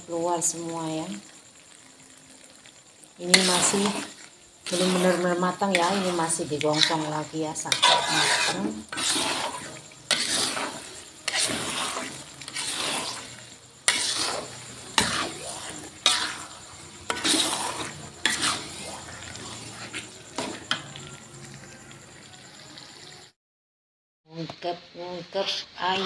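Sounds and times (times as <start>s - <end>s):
spice paste sizzling in oil: 0.0s - 23.4s, 24.3s - 26.0s
metal spoon scraping a wok: 3.2s - 21.2s, 25.4s - 26.0s.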